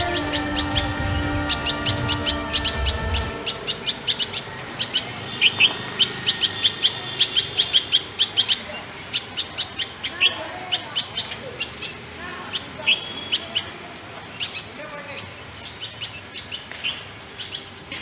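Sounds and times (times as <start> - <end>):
background music: 0.0 - 4.6
small birds chirping: 0.0 - 18.0.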